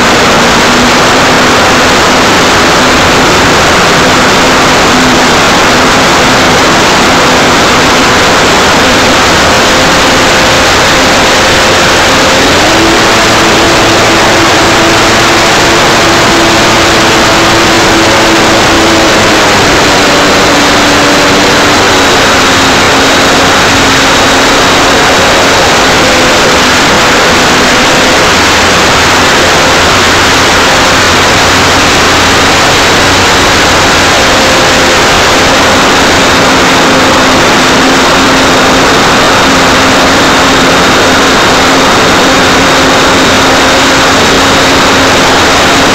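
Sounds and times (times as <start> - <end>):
electric motor whine: 0.0 - 45.9
rush of air and propeller noise: 0.0 - 45.9.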